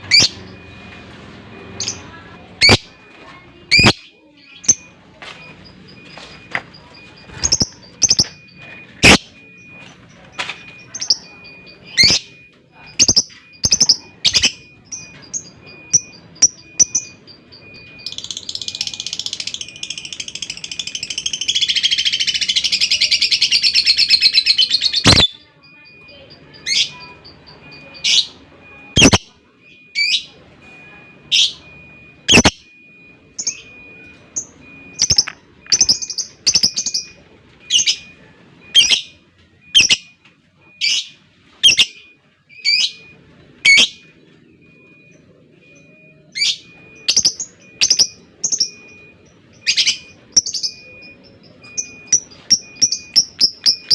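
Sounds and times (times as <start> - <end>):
lovebird rapid chattering trill: 18.1 - 25.4, 29.0 - 29.2, 32.3 - 32.5.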